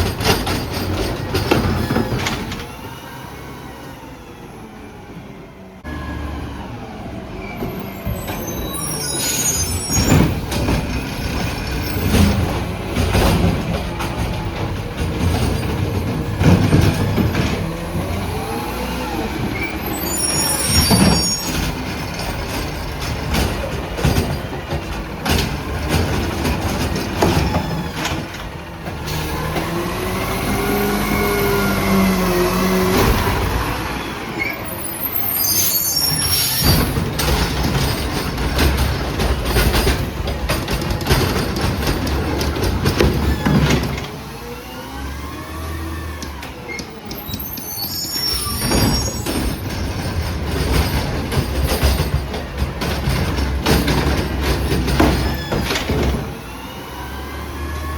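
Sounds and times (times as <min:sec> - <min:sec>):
carts clanking and banging: 0:00.0 - 0:03.4, 0:07.2 - 0:57.9
garbage truck engine revving: 0:00.0 - 0:57.9
air brake hissing squeals: 0:07.4 - 0:12.0, 0:19.1 - 0:22.3, 0:30.8 - 0:38.1, 0:46.7 - 0:50.0.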